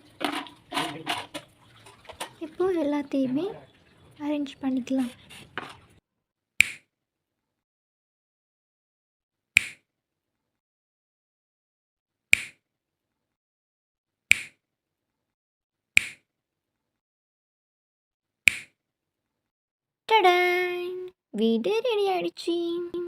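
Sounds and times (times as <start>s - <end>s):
sharp click: 6.6s - 6.8s, 9.6s - 9.8s, 12.3s - 12.6s, 14.3s - 14.6s, 16.0s - 16.2s, 18.5s - 18.7s.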